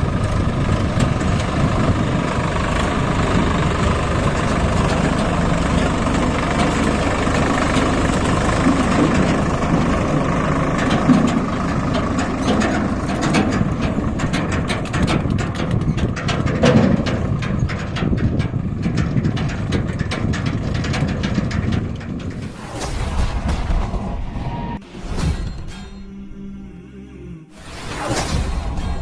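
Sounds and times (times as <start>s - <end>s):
tractor diesel engine running: 0.0s - 26.4s
rapid clatter of clicks: 4.3s - 22.4s.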